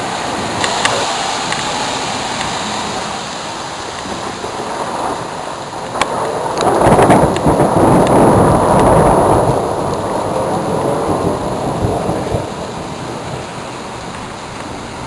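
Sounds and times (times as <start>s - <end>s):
steady hiss: 0.0s - 4.2s
thunder crack: 4.2s - 13.2s
rolling thunder rumble: 4.2s - 13.6s.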